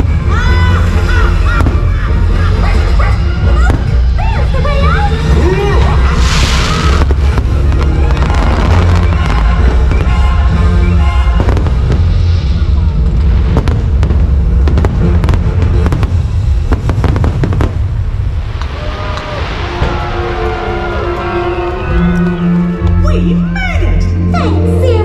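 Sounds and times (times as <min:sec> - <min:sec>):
fireworks bursting and crackling: 0:05.2 - 0:21.3
sharp firework bangs: 0:13.2 - 0:20.3.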